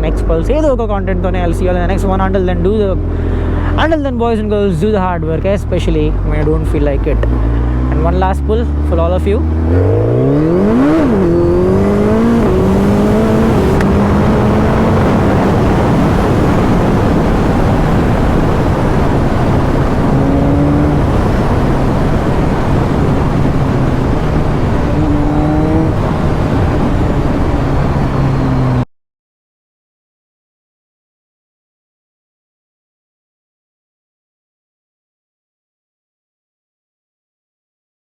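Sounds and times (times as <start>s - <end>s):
motorcycle engine running hard: 0.0s - 28.8s
wind rush on microphone: 4.5s - 28.8s.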